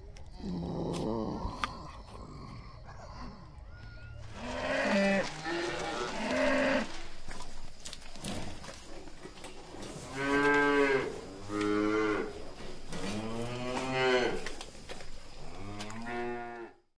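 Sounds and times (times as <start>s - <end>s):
cattle mooing: 4.2s - 7.2s, 10.0s - 14.6s, 15.4s - 16.8s.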